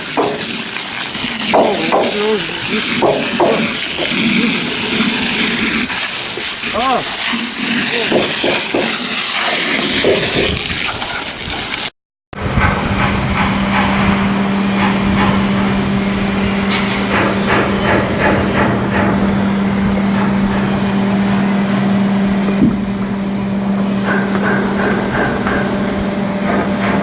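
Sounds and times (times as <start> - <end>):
short knocks and clanks: 0.1 - 0.7, 1.5 - 5.1
machinery hum: 12.4 - 27.0.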